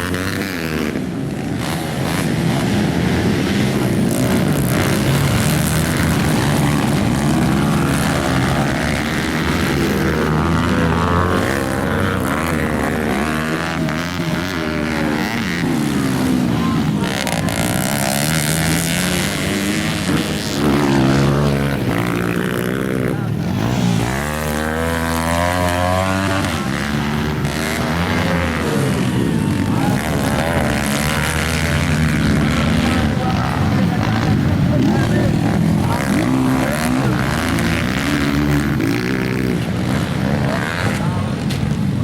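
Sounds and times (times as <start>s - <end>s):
motocross bikes revving: 0.0s - 42.0s.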